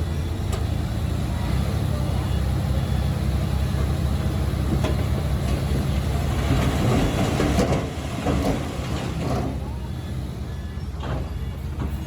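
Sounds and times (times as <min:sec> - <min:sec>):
bulldozer diesel engine: 0:00.0 - 0:12.0
steel tracks clanking: 0:04.7 - 0:09.8.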